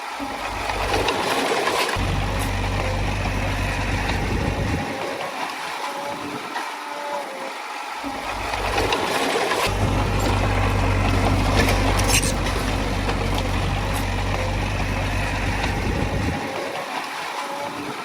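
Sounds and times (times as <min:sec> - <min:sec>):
diesel engine rumble: 0:00.4 - 0:01.1, 0:02.0 - 0:05.0, 0:08.2 - 0:09.0, 0:09.7 - 0:16.6.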